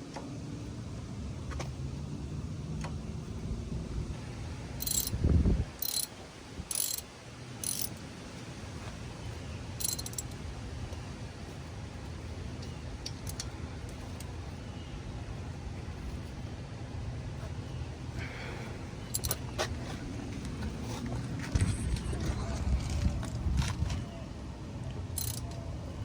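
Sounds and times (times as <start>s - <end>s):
low background hum: 0.0s - 26.0s
metallic ratcheting clicks: 4.8s - 5.2s, 5.8s - 6.1s, 6.7s - 7.0s, 7.6s - 7.9s, 9.8s - 10.4s, 19.1s - 19.4s, 25.2s - 25.6s.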